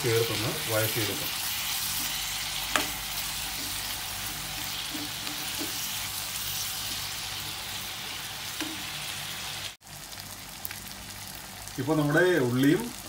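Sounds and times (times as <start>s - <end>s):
vegetables sizzling in oil: 0.0s - 13.0s
spoon scraping pan: 1.4s - 7.1s.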